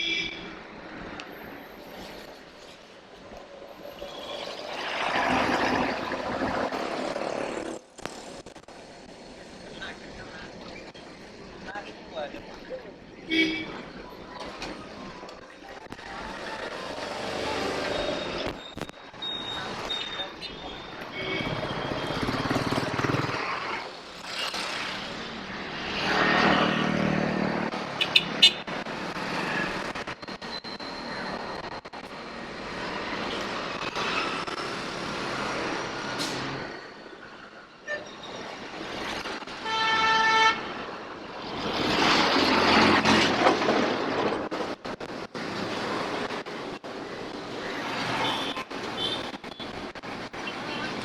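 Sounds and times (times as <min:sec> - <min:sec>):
motor vehicles passing: 0:03.5 - 0:08.4, 0:21.4 - 0:30.2.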